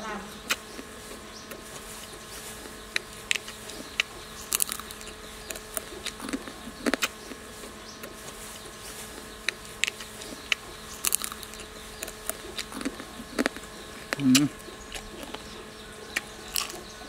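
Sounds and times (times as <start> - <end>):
steady buzzing drone: 0.0 - 17.0
beetle being chewed crunches: 0.3 - 17.0.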